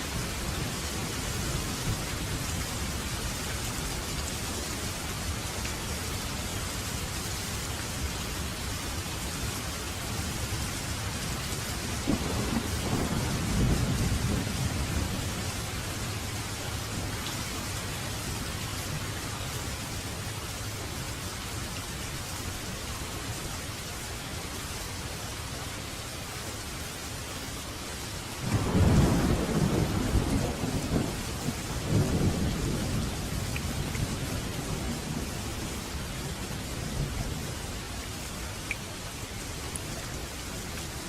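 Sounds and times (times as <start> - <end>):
steady rain falling: 0.0 - 41.0
thunder rumbling: 11.8 - 17.2, 28.4 - 37.6.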